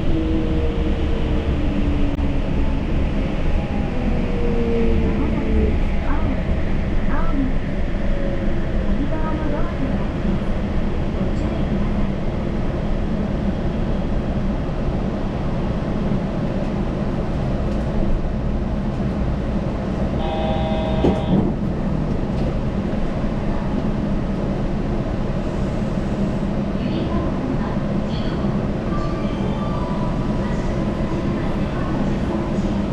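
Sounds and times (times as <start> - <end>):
train rumbling: 0.0 - 32.9
multi-pitch electronic tone: 20.2 - 21.4.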